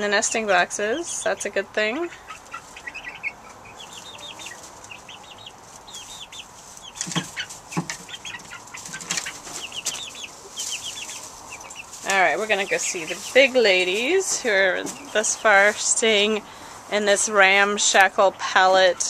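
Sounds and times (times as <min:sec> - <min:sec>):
chicks peeping: 0:00.1 - 0:19.0
sharp knocks: 0:07.0 - 0:08.1.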